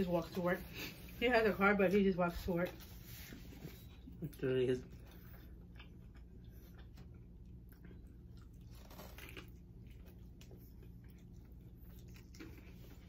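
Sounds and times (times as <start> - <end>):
people chewing fried chicken: 4.0 - 13.0.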